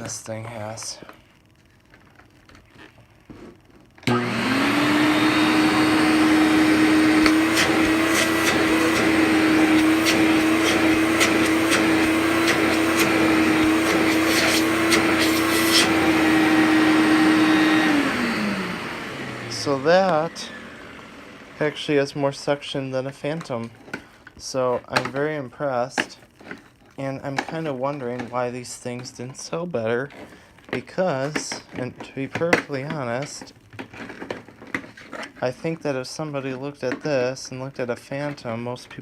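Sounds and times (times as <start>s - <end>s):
vacuum cleaner motor humming: 4.0s - 23.7s.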